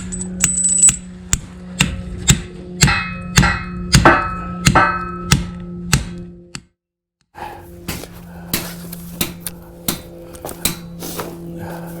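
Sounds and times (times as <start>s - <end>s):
steady low hum: 0.0s - 5.9s, 7.4s - 12.0s
hammer striking steel wedge anchor: 1.8s - 6.2s, 7.9s - 10.9s.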